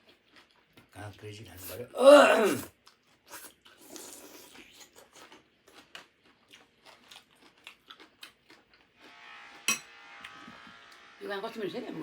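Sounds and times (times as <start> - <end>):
person chewing cucumber crunches: 0.0 - 1.0, 2.7 - 9.0.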